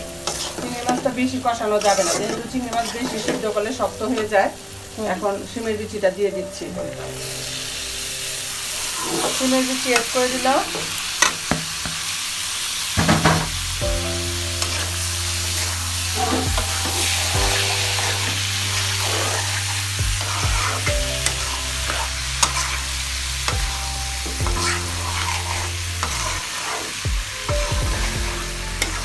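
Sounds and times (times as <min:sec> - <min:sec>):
food sizzling in hot oil: 0:00.0 - 0:29.0
metal spoon scraping a pan: 0:00.2 - 0:03.6, 0:08.7 - 0:11.6, 0:14.6 - 0:23.6, 0:24.2 - 0:27.1, 0:28.0 - 0:29.0.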